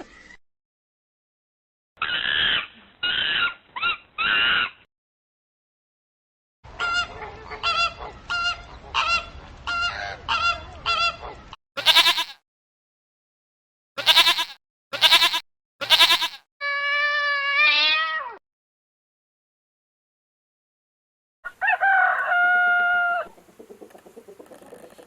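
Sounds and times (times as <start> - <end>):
long falling animal call: 21.6 - 23.3.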